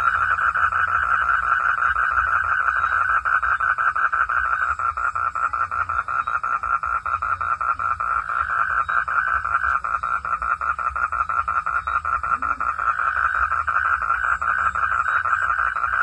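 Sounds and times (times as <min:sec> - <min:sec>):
frogs calling in chorus: 0:00.0 - 0:16.0.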